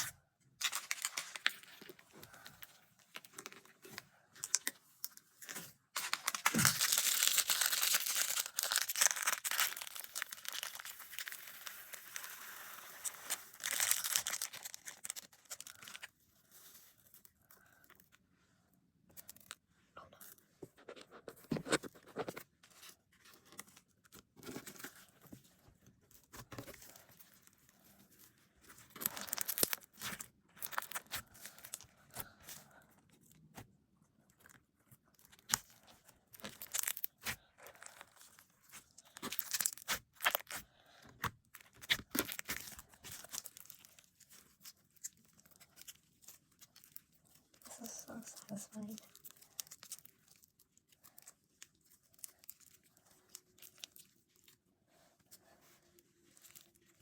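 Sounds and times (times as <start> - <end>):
slime squelching crackles and pops: 36.3 - 38.0, 38.6 - 43.7.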